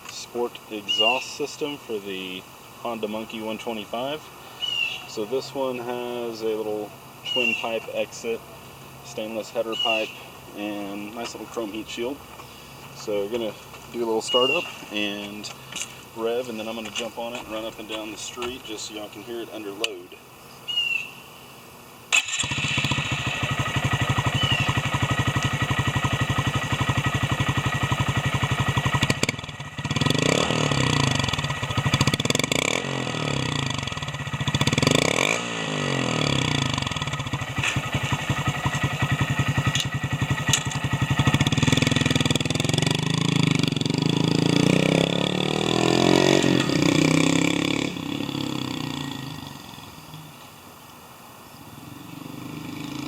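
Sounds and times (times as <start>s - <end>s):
motorcycle engine idling and revving: 22.2s - 50.6s, 51.5s - 53.0s.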